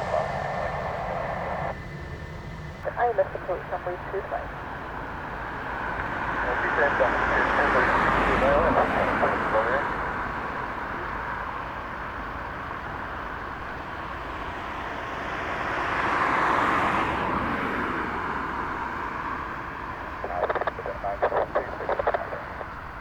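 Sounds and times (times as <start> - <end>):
aircraft passing: 0.0 - 23.0.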